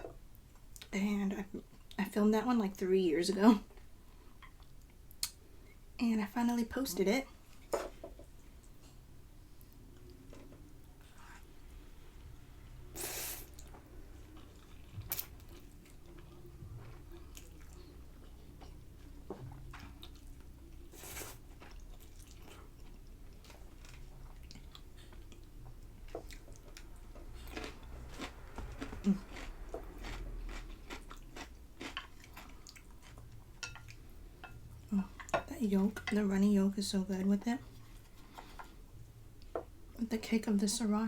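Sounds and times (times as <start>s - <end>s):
chewing and biting noodles: 27.4s - 33.2s.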